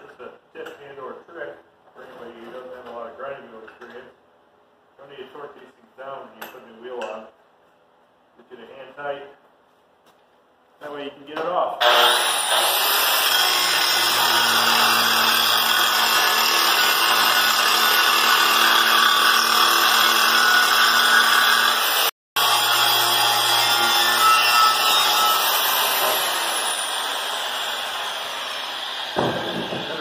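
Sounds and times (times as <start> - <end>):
angle grinder grinding steel: 11.8 - 30.0.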